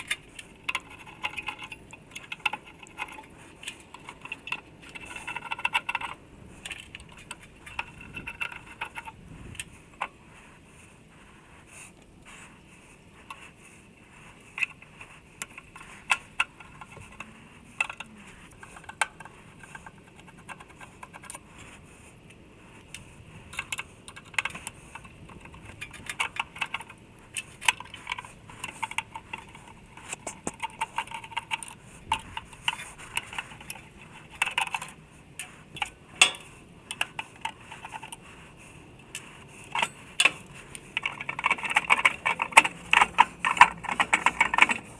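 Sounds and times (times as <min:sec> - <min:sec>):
metal tools clinking: 0:35.8 - 0:36.6, 0:39.7 - 0:44.9.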